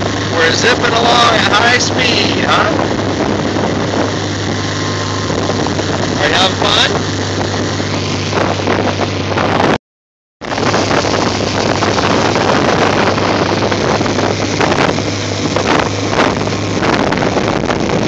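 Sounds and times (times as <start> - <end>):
motorboat engine hum: 0.0 - 9.8, 10.4 - 18.0
rushing water: 0.0 - 9.8, 10.4 - 18.0
wind noise on microphone: 0.0 - 9.8, 10.4 - 18.0.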